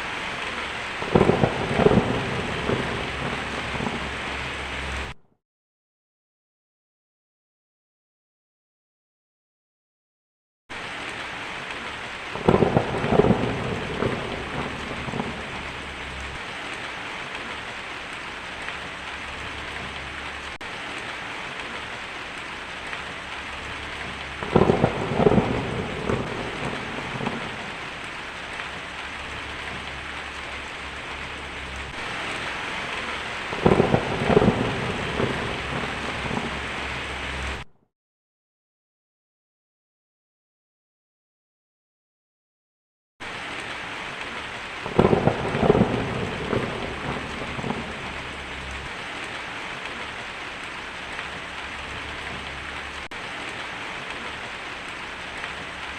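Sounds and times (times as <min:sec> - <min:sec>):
steady rain falling: 0:00.0 - 0:05.2, 0:10.7 - 0:37.7, 0:43.2 - 0:55.9
thunder claps rumbling: 0:00.4 - 0:05.2, 0:12.3 - 0:37.7, 0:44.8 - 0:55.9.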